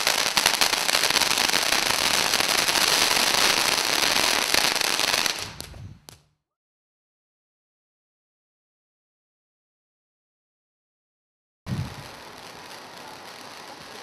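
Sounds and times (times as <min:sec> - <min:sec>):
firework fountain crackling and hissing: 0:00.0 - 0:06.2, 0:11.7 - 0:14.0.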